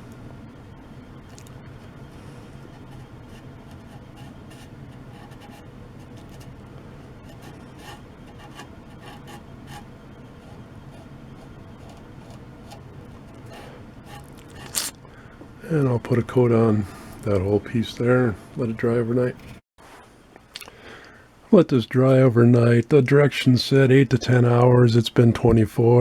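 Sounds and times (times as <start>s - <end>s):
rag rubbing on wood: 2.0s - 15.0s.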